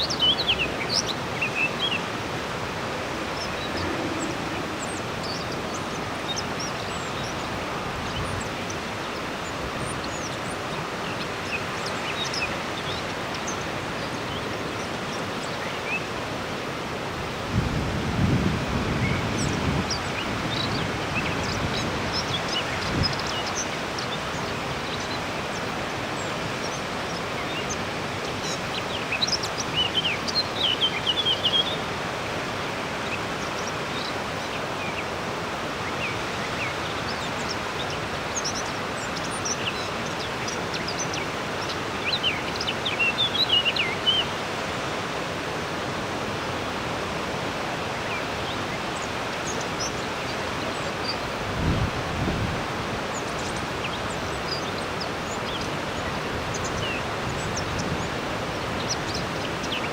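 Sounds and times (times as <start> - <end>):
robin singing: 0.0 - 16.1, 18.8 - 31.9, 35.8 - 44.4, 53.1 - 59.9
river rushing: 0.0 - 59.9.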